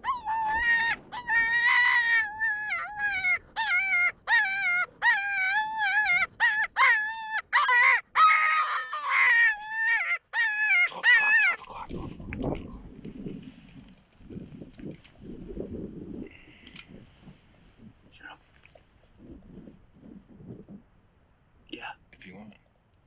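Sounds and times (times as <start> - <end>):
coyote call yelps: 0.0 - 11.6.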